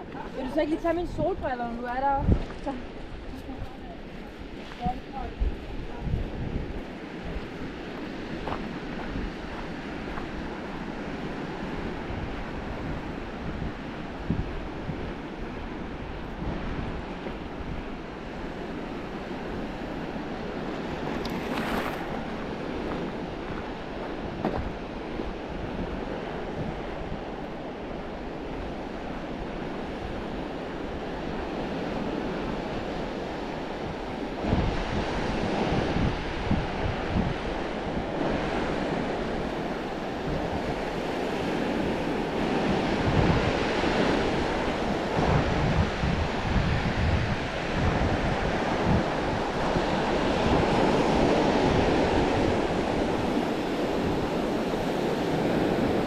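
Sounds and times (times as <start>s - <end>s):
waves breaking on shore: 0.0s - 56.0s
wind buffeting microphone: 0.0s - 56.0s.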